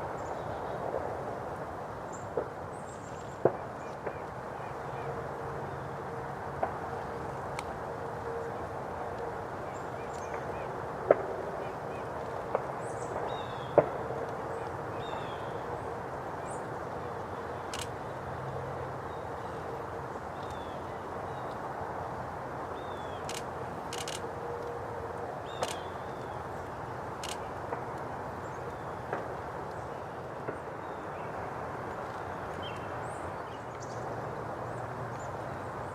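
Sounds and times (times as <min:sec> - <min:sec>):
steady outdoor hiss: 0:00.0 - 0:35.9
sharp clicks: 0:17.7 - 0:17.9, 0:23.2 - 0:24.3, 0:25.6 - 0:25.9, 0:27.2 - 0:27.5.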